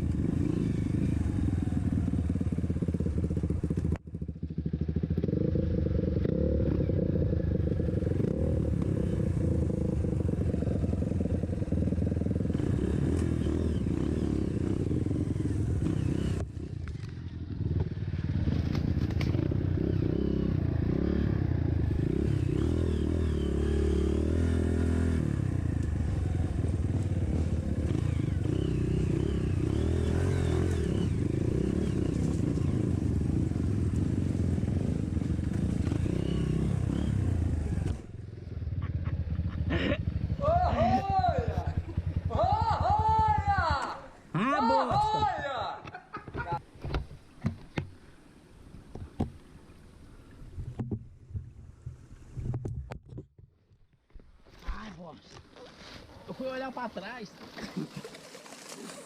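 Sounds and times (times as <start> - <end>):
dirt bike engine running: 0.0 - 44.1.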